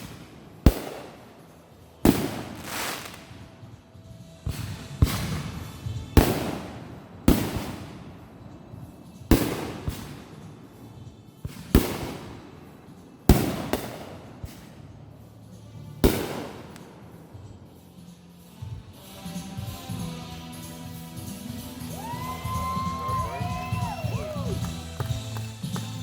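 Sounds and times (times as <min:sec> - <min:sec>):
small firework pops: 0:00.0 - 0:01.5, 0:02.1 - 0:03.8, 0:13.3 - 0:14.9, 0:16.0 - 0:16.9, 0:24.2 - 0:26.0
fireworks bangs: 0:00.0 - 0:03.8, 0:04.4 - 0:14.9, 0:16.0 - 0:17.5.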